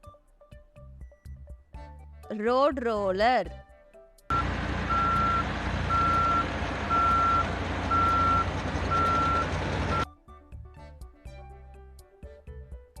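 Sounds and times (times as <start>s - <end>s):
road roller diesel engine running: 4.3s - 10.0s
reversing alarm beeping: 4.3s - 10.1s.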